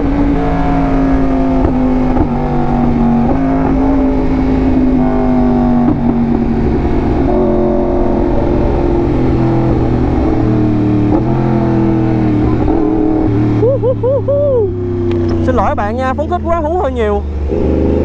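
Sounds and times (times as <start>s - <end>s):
motorcycle engine running hard: 0.0s - 18.0s
rider whooping: 13.5s - 14.9s.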